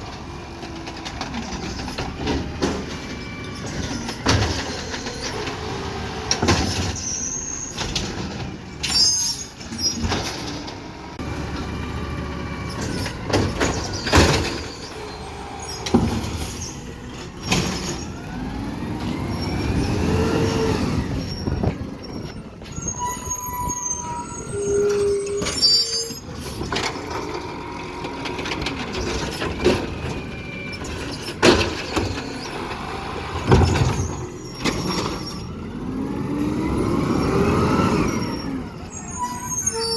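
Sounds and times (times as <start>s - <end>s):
metal clanks and bangs: 0.1s - 5.6s, 7.7s - 11.7s, 12.6s - 18.2s, 24.7s - 32.8s
short squeals: 6.7s - 8.1s, 8.7s - 10.7s, 12.6s - 18.2s, 19.3s - 28.0s, 33.7s - 35.7s, 36.9s - 39.9s
garbage truck engine running: 9.6s - 39.9s.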